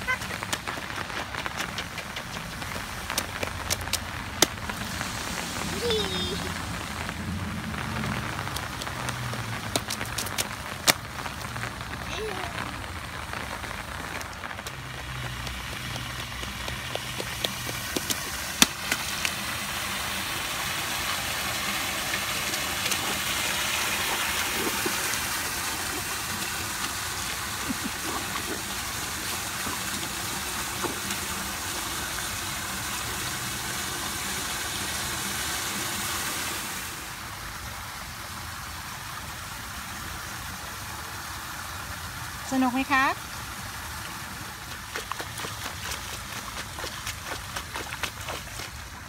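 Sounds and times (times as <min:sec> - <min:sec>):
boots stomping in puddles: 0:00.0 - 0:05.0, 0:08.1 - 0:11.7, 0:13.9 - 0:19.4, 0:44.4 - 0:49.0
rain hissing on wet pavement: 0:00.0 - 0:49.0.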